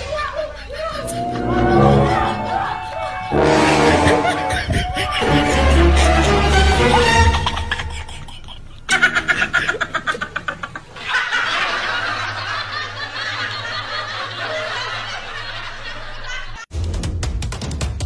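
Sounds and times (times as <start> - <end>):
person laughing: 0.6 - 10.8.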